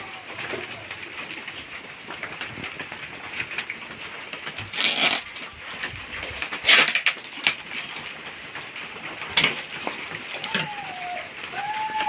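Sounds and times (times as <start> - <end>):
plastic packaging crinkling: 4.5 - 8.1.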